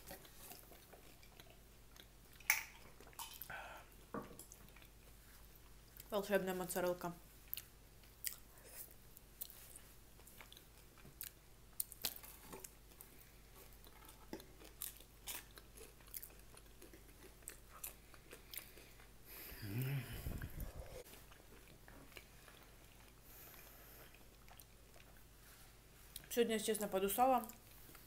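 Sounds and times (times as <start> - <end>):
chewing with mouth clicks: 0.0 - 6.1, 7.4 - 19.2, 20.3 - 26.3
food crunching: 7.4 - 19.2.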